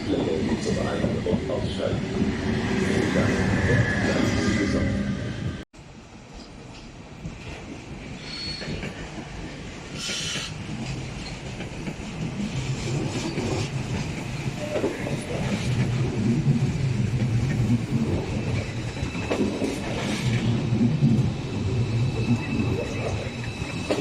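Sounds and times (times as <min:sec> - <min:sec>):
train rumbling: 0:00.0 - 0:24.0.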